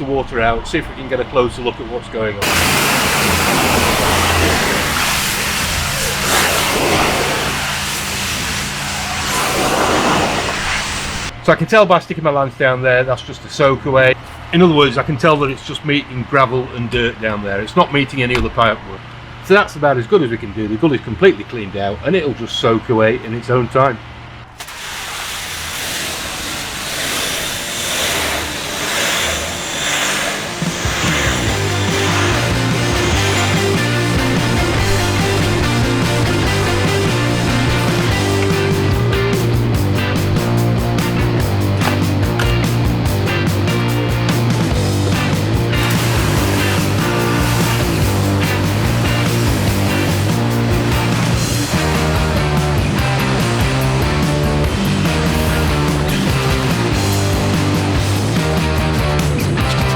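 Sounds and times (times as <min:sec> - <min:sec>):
pressure washer spray hissing: 0:02.4 - 0:11.3, 0:24.6 - 0:58.6
engine humming: 0:02.4 - 0:11.4, 0:24.2 - 0:59.9
background music with a beat: 0:31.1 - 0:59.9.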